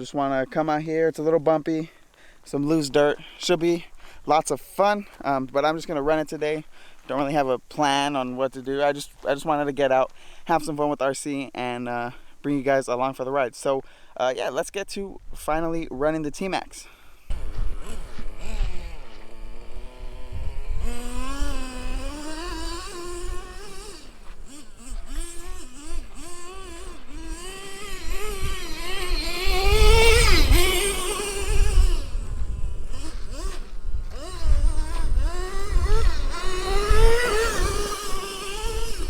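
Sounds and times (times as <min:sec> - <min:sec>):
model truck engine revving: 0:17.3 - 0:39.0.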